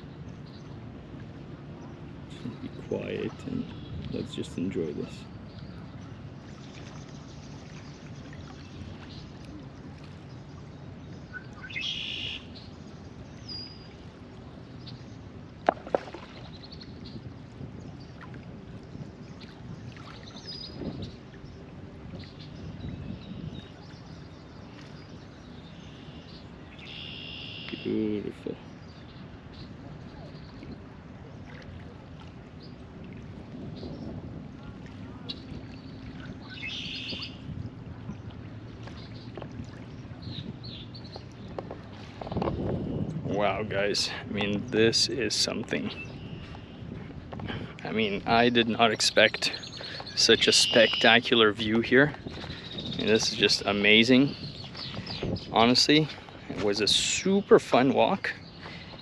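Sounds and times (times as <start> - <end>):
water lapping: 0.0 - 59.0
small birds chirping: 19.2 - 21.6, 35.2 - 37.4, 38.0 - 41.7, 47.5 - 59.0
whistled bird note: 26.8 - 27.9, 49.6 - 51.3
harsh bird call: 49.3 - 51.4.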